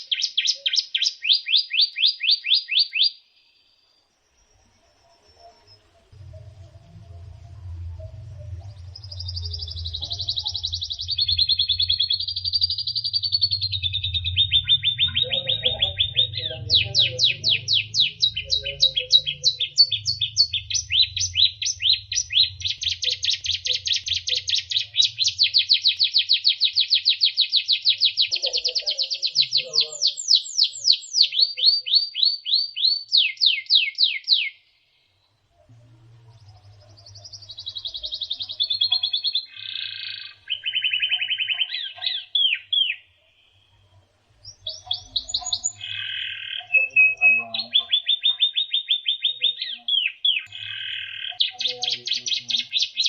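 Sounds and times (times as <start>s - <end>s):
bird singing fast trills: 0.0s - 35.2s, 36.2s - 53.0s
low hum: 4.0s - 26.0s, 35.2s - 38.9s.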